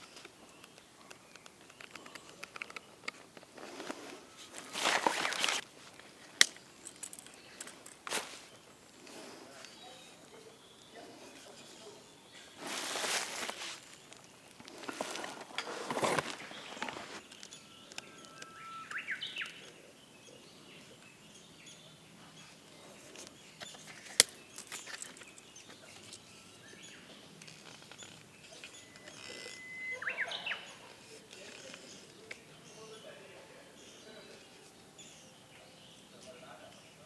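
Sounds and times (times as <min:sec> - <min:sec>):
bird singing: 0:00.0 - 0:37.0
rustle: 0:01.8 - 0:10.3, 0:11.2 - 0:33.1.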